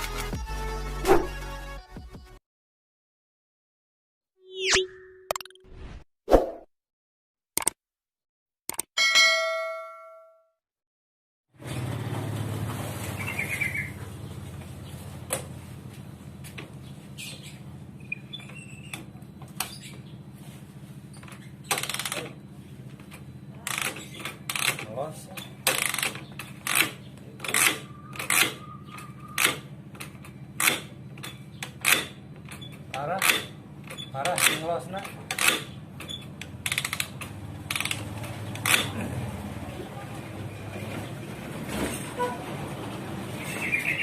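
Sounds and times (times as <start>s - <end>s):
motorcycle kick-starter slipping: 21.0s - 39.1s.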